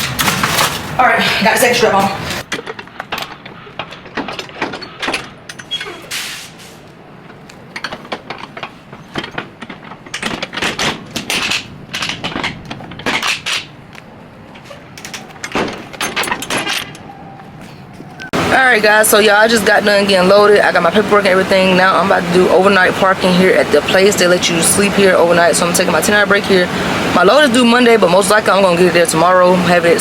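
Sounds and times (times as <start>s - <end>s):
metal strap hardware clanking: 2.4s - 6.6s, 7.2s - 18.2s.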